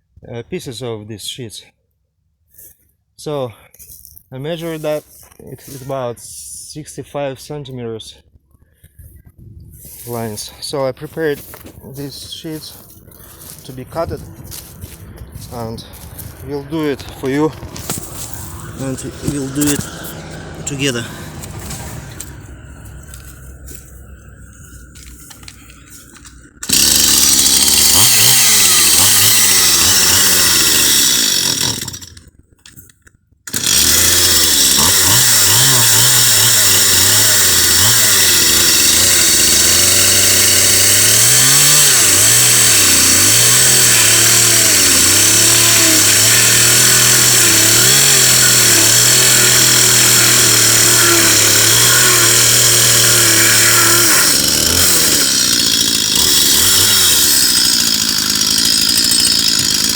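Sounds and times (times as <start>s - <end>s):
chainsaw running and revving: 12.0s - 32.3s, 33.5s - 59.9s.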